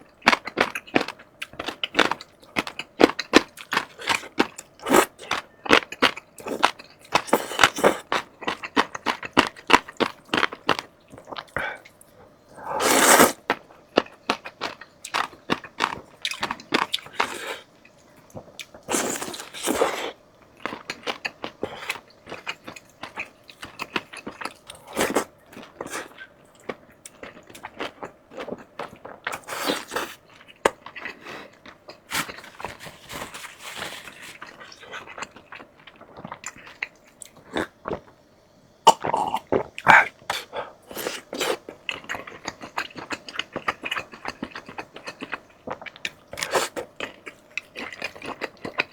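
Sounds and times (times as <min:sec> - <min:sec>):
crunching and chewing: 0:00.0 - 0:38.2, 0:38.9 - 0:48.9.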